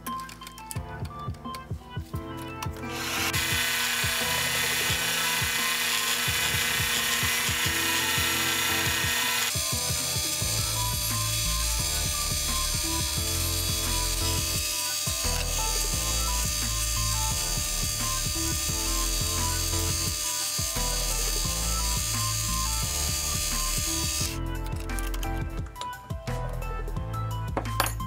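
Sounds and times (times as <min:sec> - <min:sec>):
background music: 0:00.0 - 0:28.0
lathe cutting with loud hiss: 0:02.9 - 0:24.4.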